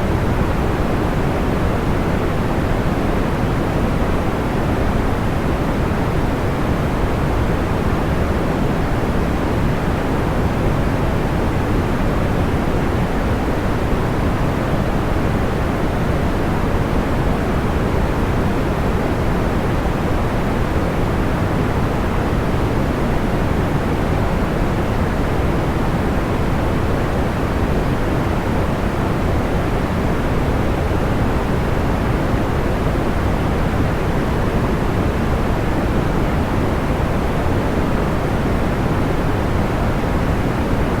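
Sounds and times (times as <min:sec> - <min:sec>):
white noise hiss: 0:00.0 - 0:41.0.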